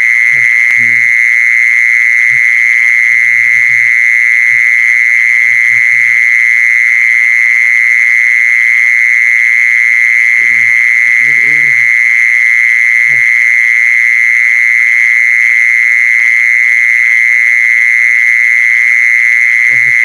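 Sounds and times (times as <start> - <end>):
high-pitched buzzing bird call: 10.0 - 12.2.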